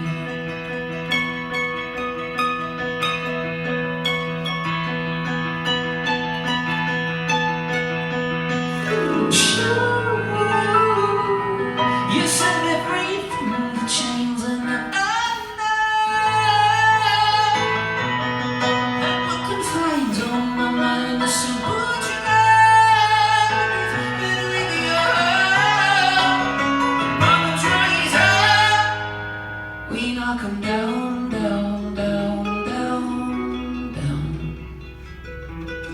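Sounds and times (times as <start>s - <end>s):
acoustic guitar: 0.0s - 35.9s
man singing slow song: 8.8s - 18.0s, 19.0s - 29.1s.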